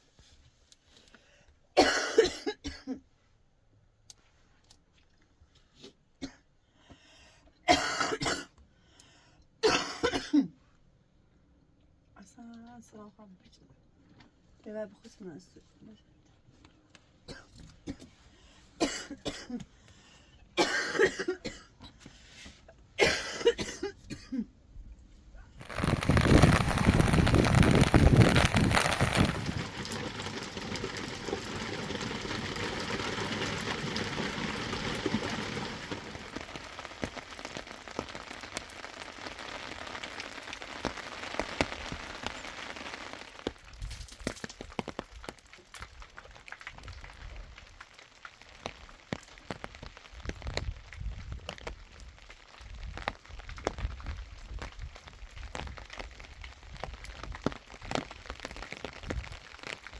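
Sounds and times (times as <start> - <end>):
woman coughing: 1.8 - 3.0, 7.7 - 8.5, 9.6 - 10.6, 18.8 - 19.6, 20.6 - 21.7, 23.0 - 24.5.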